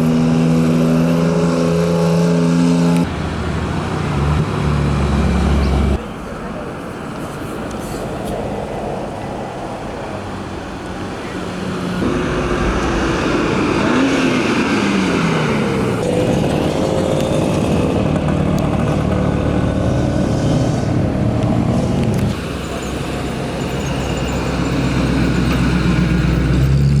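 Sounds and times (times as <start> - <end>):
car engines driving past: 0.0 - 27.0
engine low rumble: 2.7 - 27.0.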